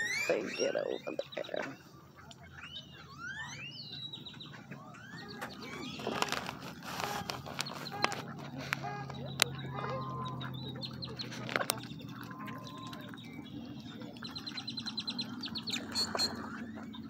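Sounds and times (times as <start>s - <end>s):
birds chirping and clicking: 0.0s - 17.0s.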